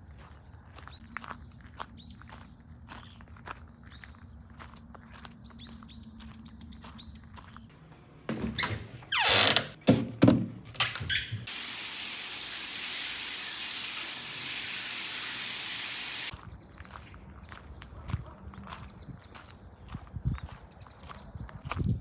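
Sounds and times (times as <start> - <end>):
loud knocks: 9.6 - 10.8
steady hiss: 11.5 - 16.3.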